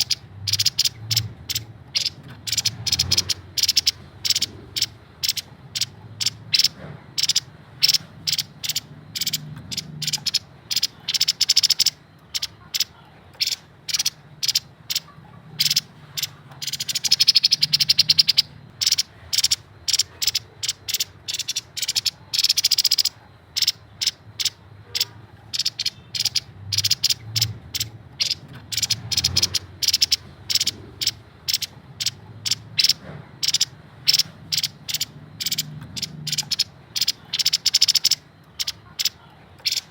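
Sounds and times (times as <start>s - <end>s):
bird chattering call: 0.0s - 39.9s.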